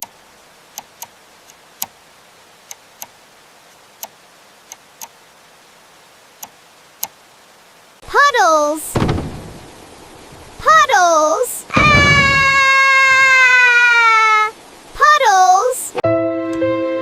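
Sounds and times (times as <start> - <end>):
raindrops tapping: 0.0 - 8.0, 8.9 - 10.9
faint hiss: 0.0 - 16.0.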